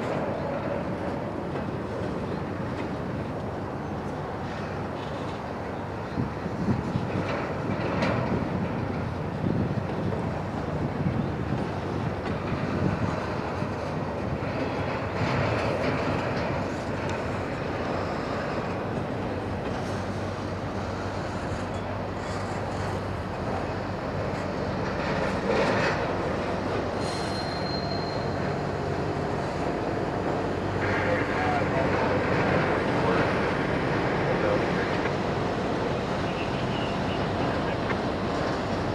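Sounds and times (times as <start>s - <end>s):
train wheels rumbling and clattering: 0.0s - 38.9s
high wheel squeal: 27.0s - 28.6s.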